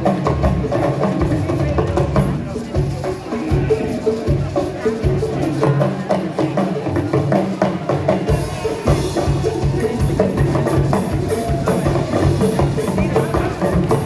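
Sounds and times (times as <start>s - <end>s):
drum and percussion beat: 0.0s - 14.0s
gospel band playing live: 0.0s - 14.0s
bass line: 8.5s - 14.0s.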